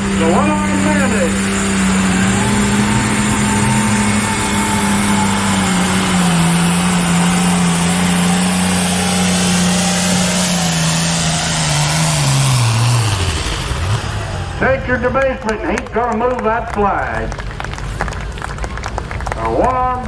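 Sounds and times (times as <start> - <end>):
tractor engine at full throttle: 0.0 - 20.0.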